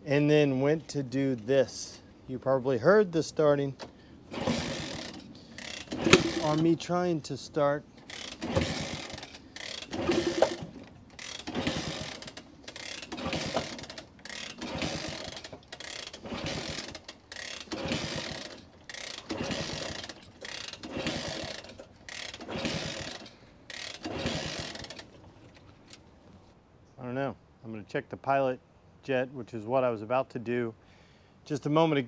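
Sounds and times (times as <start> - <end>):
motorcycle kick-starter ratcheting: 3.8 - 6.8, 8.0 - 26.1.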